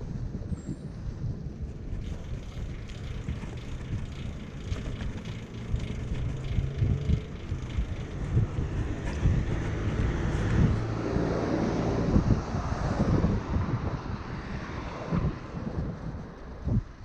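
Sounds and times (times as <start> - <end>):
wind buffeting microphone: 0.0 - 17.0
faint rattling: 1.8 - 10.9.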